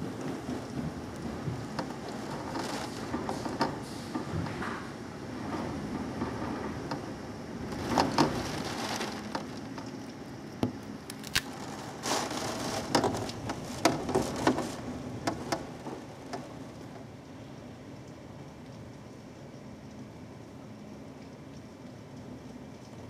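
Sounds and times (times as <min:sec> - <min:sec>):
rain falling: 0:00.0 - 0:23.0.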